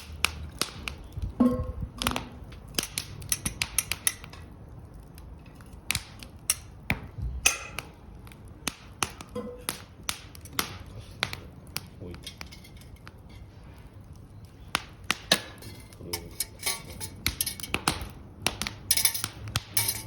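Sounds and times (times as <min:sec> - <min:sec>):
firewood crackling: 0:00.0 - 0:20.0.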